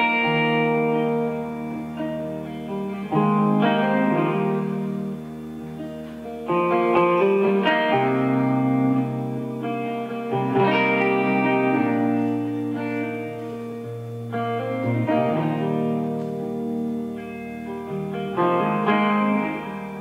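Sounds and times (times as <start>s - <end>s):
guitar chords ringing: 0.0s - 20.0s.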